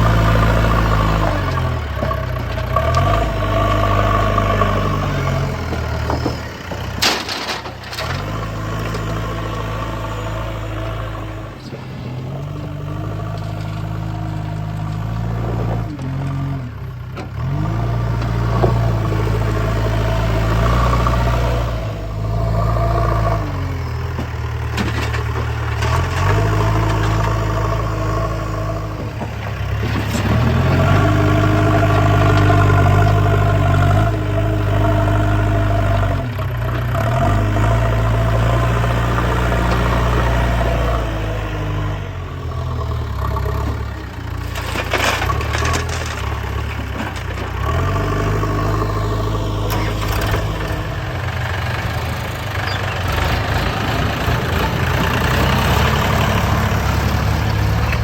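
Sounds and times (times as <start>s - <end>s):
diesel engine revving: 0.0s - 58.0s.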